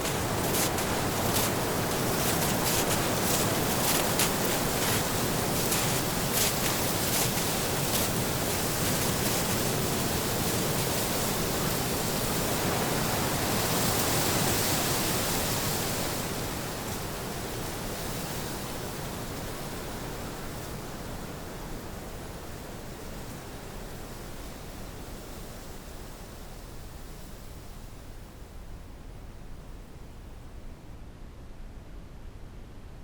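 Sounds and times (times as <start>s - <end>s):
footsteps crunching in snow: 0.0s - 12.4s
steady brown-noise rushing: 0.0s - 17.9s.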